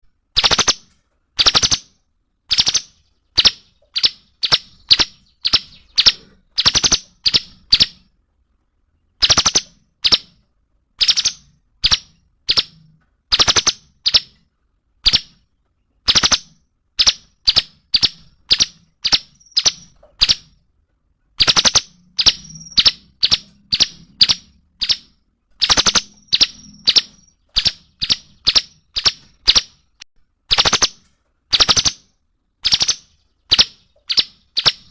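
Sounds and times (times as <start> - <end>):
bird calling sharp notes: 0.4 - 8.1.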